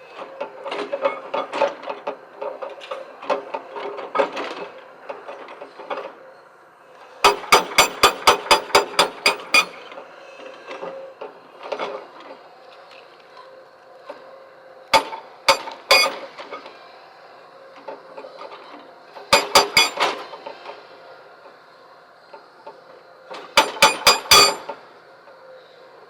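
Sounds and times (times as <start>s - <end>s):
breaker hammer striking stone: 7.2s - 9.8s.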